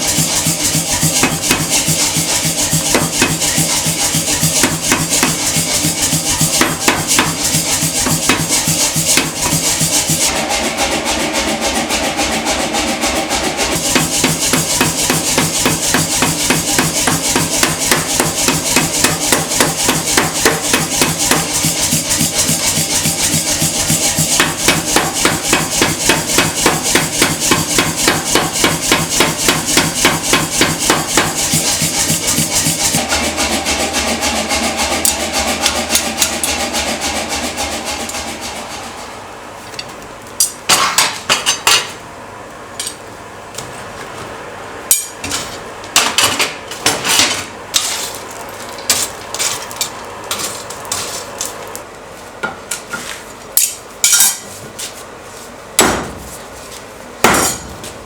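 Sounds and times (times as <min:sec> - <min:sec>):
power hammer forging steel: 0:00.0 - 0:41.7, 0:57.2 - 0:58.0
motor running: 0:31.1 - 0:39.1.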